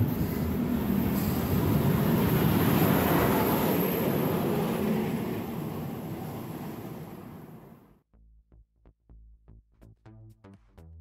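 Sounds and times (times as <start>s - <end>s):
passing train wheel rush: 0.0s - 8.0s.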